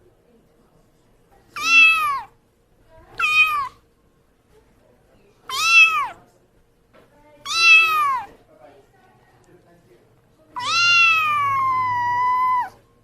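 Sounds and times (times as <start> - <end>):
cat meowing: 1.5 - 2.3, 3.1 - 3.8, 5.5 - 6.2, 7.4 - 8.4, 10.6 - 12.8.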